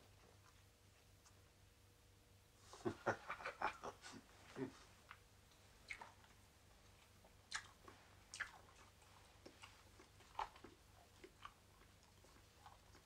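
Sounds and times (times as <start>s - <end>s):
man chewing: 5.8s - 13.0s.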